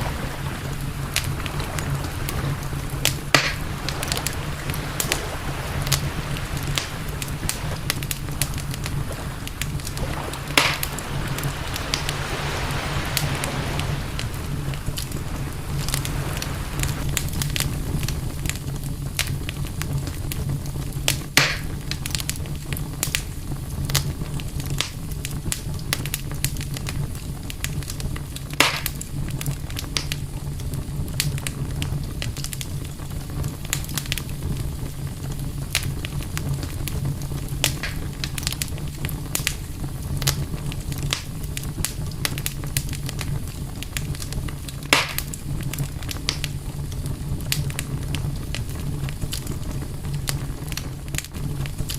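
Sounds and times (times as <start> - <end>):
low rumble: 0.0 - 20.9
campfire crackling: 0.0 - 51.9
loud pops of fire: 0.0 - 51.9.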